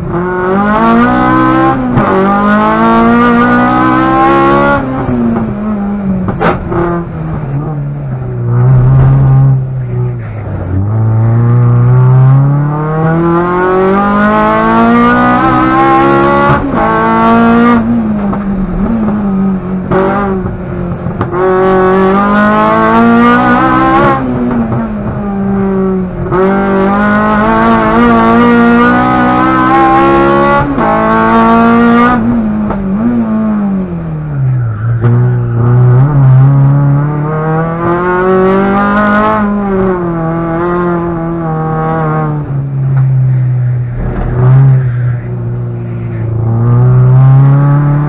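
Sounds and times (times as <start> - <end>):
race car engine revving: 0.0 - 48.0.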